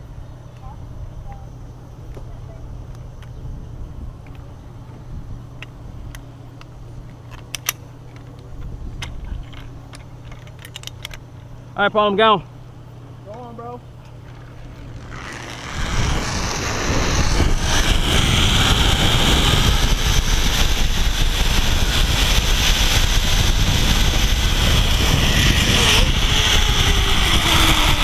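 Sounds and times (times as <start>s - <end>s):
zipline trolley whirring: 14.1s - 28.0s
wind on microphone: 14.8s - 28.0s.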